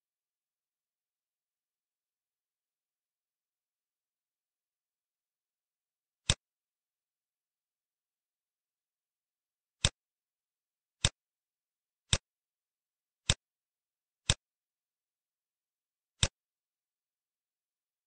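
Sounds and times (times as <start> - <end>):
computer mouse clicks: 14.2 - 14.4.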